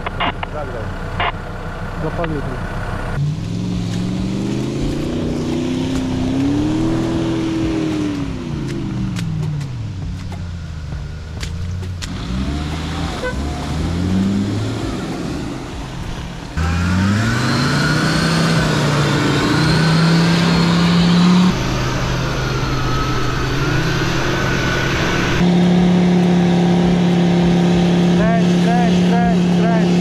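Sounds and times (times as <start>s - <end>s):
engine revving: 0.0s - 30.0s
high wavering whine: 12.9s - 30.0s.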